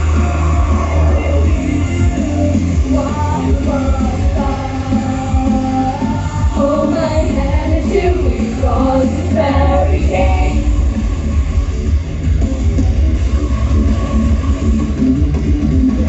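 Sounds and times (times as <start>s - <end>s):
person singing: 0.0s - 10.7s
live heavy rock music: 0.0s - 16.0s.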